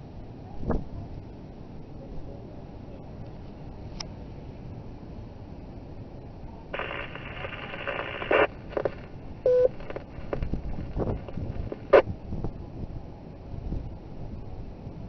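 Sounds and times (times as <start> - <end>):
faint hiss: 0.0 - 15.0
radio data burst: 6.8 - 12.1
short beep: 9.5 - 9.8.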